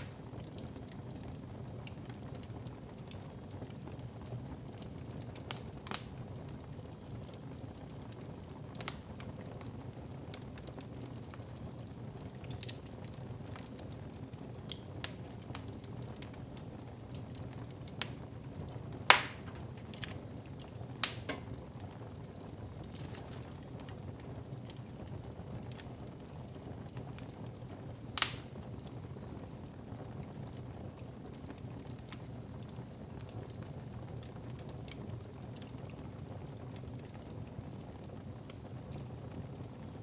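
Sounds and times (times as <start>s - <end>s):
sharp pops from fire: 0.0s - 1.2s, 4.8s - 6.7s, 8.4s - 11.4s, 12.1s - 26.2s, 27.1s - 29.0s
wood fire crackling: 0.0s - 40.0s.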